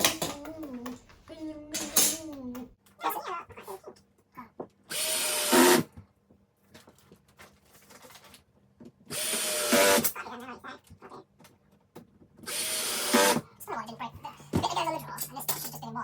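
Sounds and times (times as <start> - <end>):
cordless drill driving screws: 4.9 - 5.9, 9.1 - 10.1, 12.5 - 13.4.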